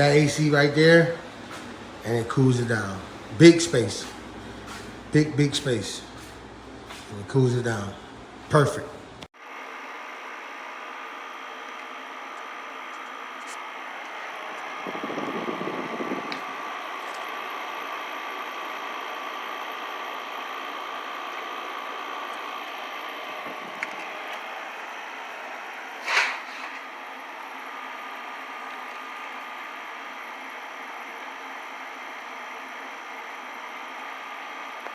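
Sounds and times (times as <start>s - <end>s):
window air conditioner running: 0.0s - 34.9s.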